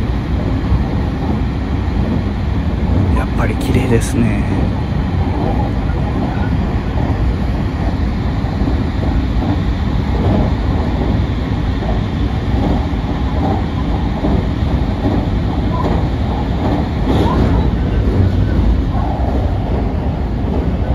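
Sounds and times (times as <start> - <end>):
train wheels rumbling on rail: 5.4 - 20.9
faint clickety-clack: 7.7 - 20.9.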